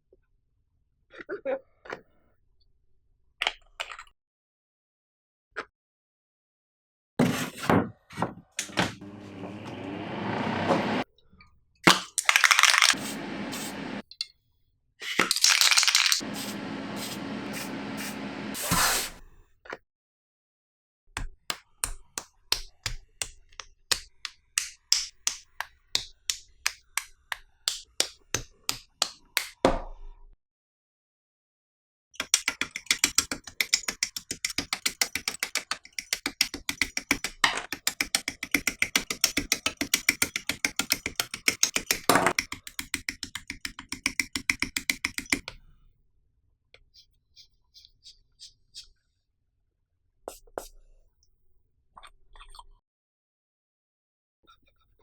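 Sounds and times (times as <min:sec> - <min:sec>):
sanding strokes on plastic: 0:32.2 - 0:45.5.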